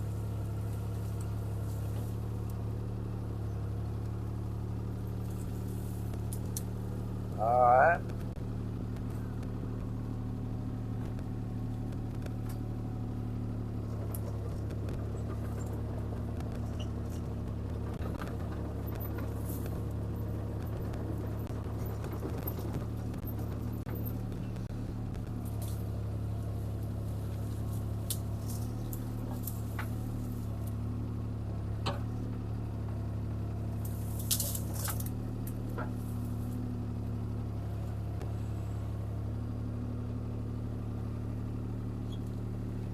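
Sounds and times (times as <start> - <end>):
excavator diesel engine running: 0.0 - 42.9
branches cracking and knocking: 25.2 - 30.8, 33.8 - 36.6.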